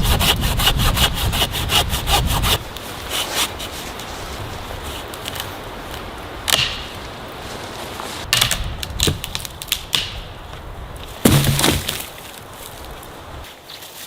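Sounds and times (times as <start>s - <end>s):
sharp cracks and knocks: 5.2s - 7.0s, 8.2s - 10.3s, 11.0s - 12.4s.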